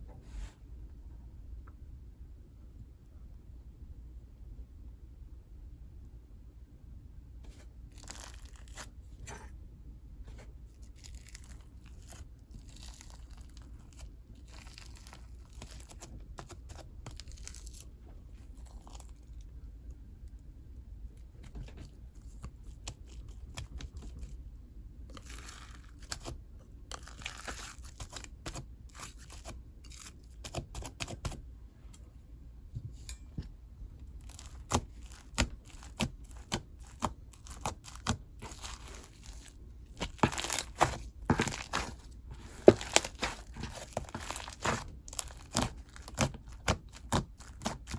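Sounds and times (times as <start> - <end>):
slime crackly tearing: 7.9 - 8.9, 10.8 - 19.4, 26.9 - 30.2, 34.2 - 47.9.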